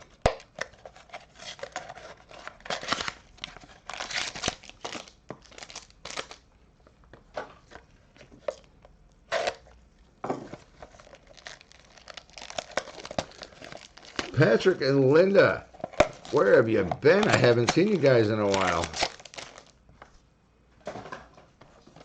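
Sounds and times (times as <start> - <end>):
card pack wrappers crinkling and tearing: 0.0 - 6.5, 10.6 - 19.9.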